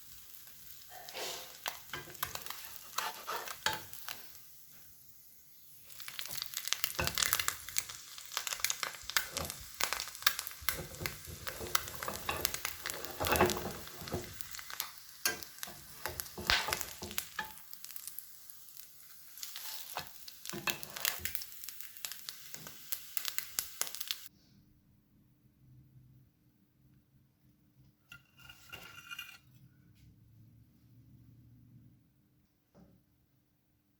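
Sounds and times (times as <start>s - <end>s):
utensil stirring food: 0.0s - 4.4s, 5.8s - 24.2s
food sizzling in a pan: 0.0s - 24.3s.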